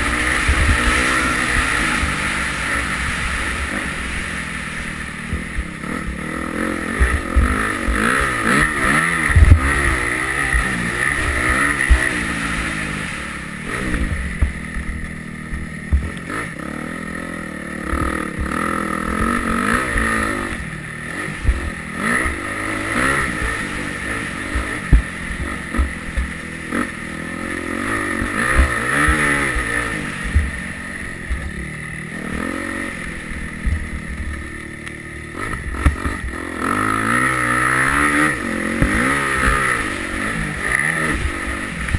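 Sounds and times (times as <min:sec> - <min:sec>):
motocross bike engine revving: 0:00.0 - 0:41.9
low thumps: 0:04.8 - 0:13.0, 0:13.8 - 0:16.2, 0:17.8 - 0:20.7, 0:21.4 - 0:27.0, 0:28.1 - 0:34.5.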